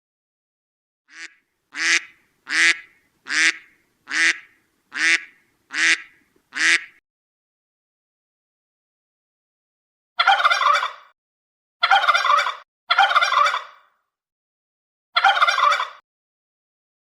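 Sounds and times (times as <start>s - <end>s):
waterfowl calling harshly: 1.1s - 7.0s, 10.2s - 11.1s, 11.8s - 13.9s, 15.2s - 16.0s.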